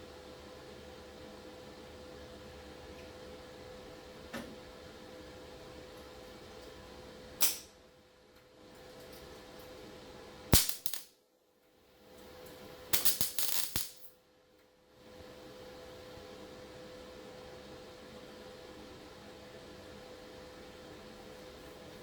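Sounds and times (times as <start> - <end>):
welding crackle: 7.4 - 7.7, 10.5 - 11.1, 12.9 - 14.1.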